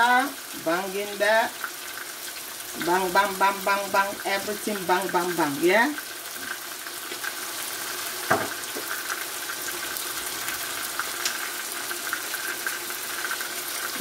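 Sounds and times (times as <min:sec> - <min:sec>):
food sizzling in oil: 0:00.0 - 0:14.0
sharp knock: 0:08.3 - 0:08.6.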